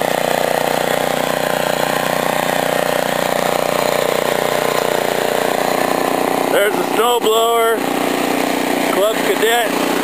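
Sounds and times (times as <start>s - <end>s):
snowblower engine running: 0.0s - 10.0s.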